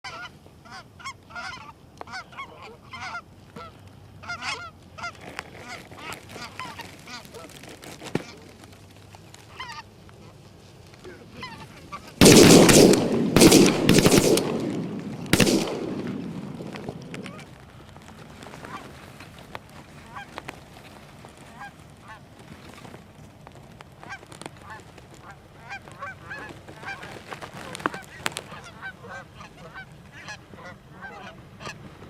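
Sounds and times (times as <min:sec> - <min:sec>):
geese honking: 0:00.0 - 0:08.6, 0:09.5 - 0:17.5, 0:20.0 - 0:20.4, 0:21.4 - 0:22.2, 0:24.0 - 0:31.9
shotgun blasts: 0:12.2 - 0:17.2.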